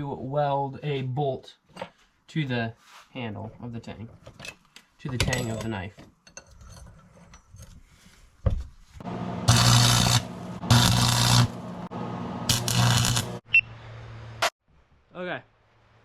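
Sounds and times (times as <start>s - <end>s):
welder electrical hum: 9.0s - 14.5s
electric welder welding: 9.1s - 13.5s.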